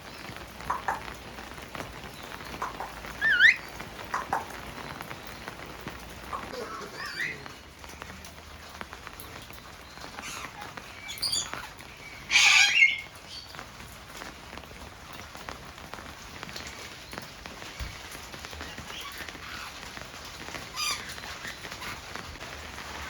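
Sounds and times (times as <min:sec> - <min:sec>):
parrot calling: 0:02.6 - 0:04.5, 0:06.3 - 0:07.6, 0:10.2 - 0:13.1.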